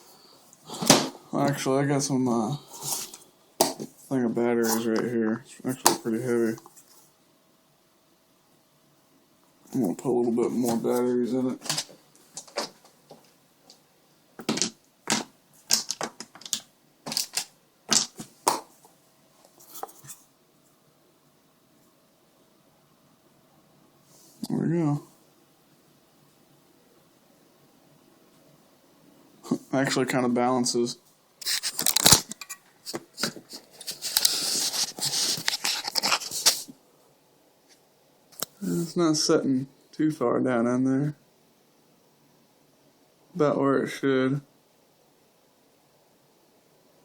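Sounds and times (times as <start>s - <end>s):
batteries clacking together: 14.4s - 18.2s
rustling: 31.4s - 36.8s.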